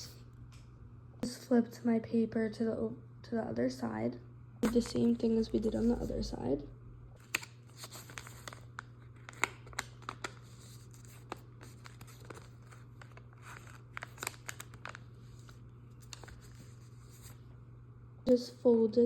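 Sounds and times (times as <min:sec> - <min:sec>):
paper being folded and creased: 0:04.6 - 0:06.3, 0:07.2 - 0:17.4.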